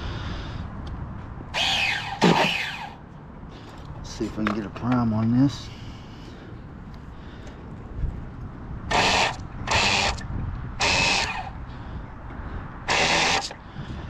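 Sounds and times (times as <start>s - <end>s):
electric starter spinning engine: 1.5s - 3.0s, 8.9s - 11.6s, 12.8s - 13.6s.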